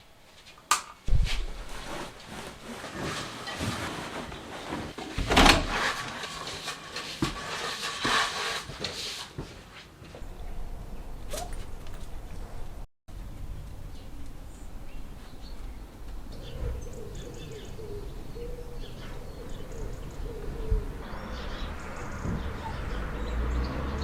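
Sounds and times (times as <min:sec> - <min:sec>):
scraping and rustling of parts: 0:00.3 - 0:12.9.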